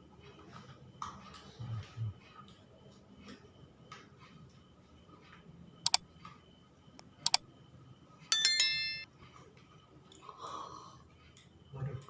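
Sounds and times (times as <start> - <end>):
sharp double clicks: 7.0 - 7.4
metal object clattering and ringing: 8.3 - 9.1.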